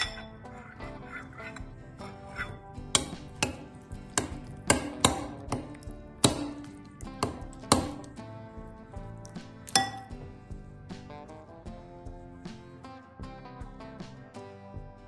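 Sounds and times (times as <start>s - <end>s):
kitchen utensils knocking: 0.0s - 8.1s, 9.7s - 10.2s
soft background music: 0.0s - 15.0s.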